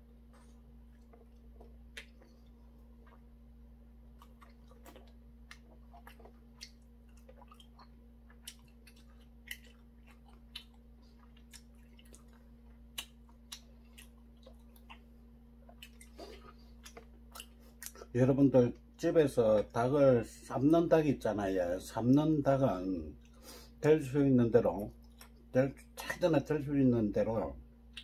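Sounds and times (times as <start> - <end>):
man chewing food: 0.0 - 18.2, 23.2 - 23.7, 24.8 - 26.0
faint electrical hum: 0.0 - 28.0.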